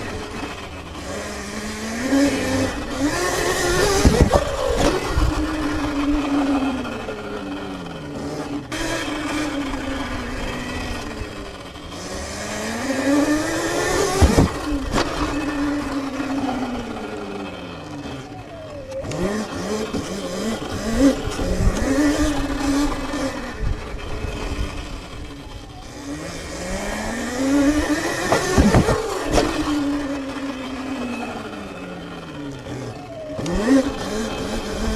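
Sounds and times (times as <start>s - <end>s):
electric dirt bike motor whining: 0.0s - 34.9s
sharp thumps: 2.0s - 6.2s, 13.2s - 15.9s, 27.5s - 30.1s
wind noise: 2.8s - 6.7s, 27.6s - 30.0s.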